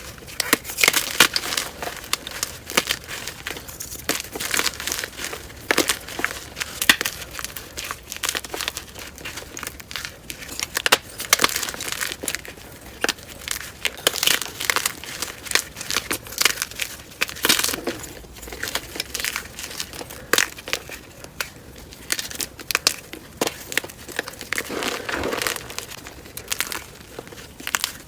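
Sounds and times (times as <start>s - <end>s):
chalk crunching by hand: 24.6s - 27.3s.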